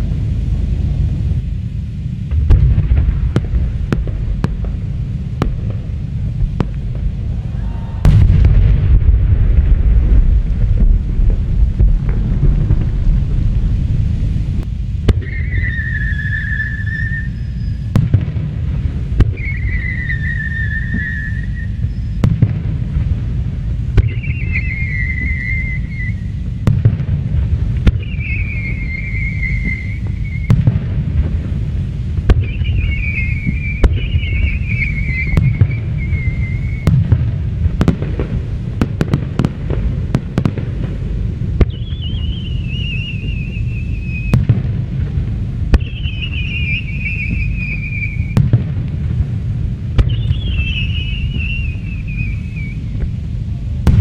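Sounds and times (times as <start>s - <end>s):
fireworks sharp bangs: 0.0s - 54.0s
rumble of firework booms: 0.0s - 54.0s
whistling firework shells: 15.0s - 18.4s, 19.1s - 23.1s, 23.9s - 27.1s, 27.7s - 44.8s, 45.7s - 49.1s, 49.9s - 53.2s.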